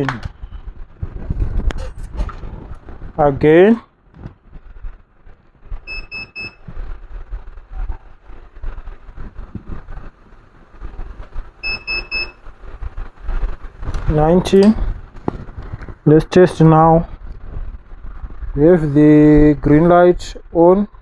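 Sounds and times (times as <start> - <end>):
short high electronic beeps: 5.9 - 6.6, 11.6 - 12.4.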